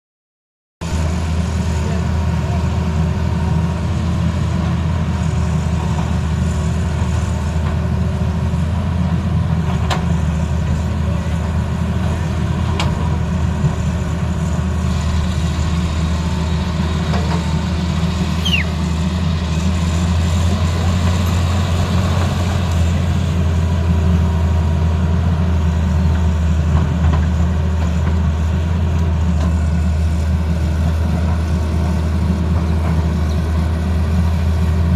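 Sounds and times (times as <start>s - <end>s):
excavator diesel engine droning: 0.8s - 34.9s
high squeak falling in pitch: 18.4s - 18.8s.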